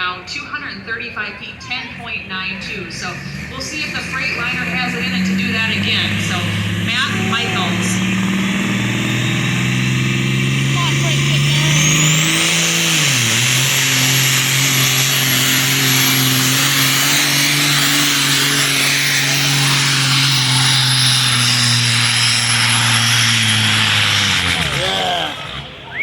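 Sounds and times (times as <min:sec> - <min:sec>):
diesel truck engine under load: 0:00.0 - 0:26.0
high engine whine: 0:00.0 - 0:26.0.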